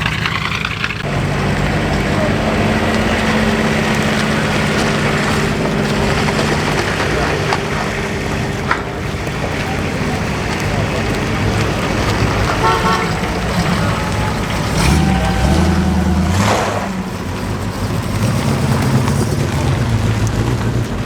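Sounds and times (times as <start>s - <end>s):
car engines passing by: 0.0s - 21.0s
car horn toot: 1.7s - 17.6s.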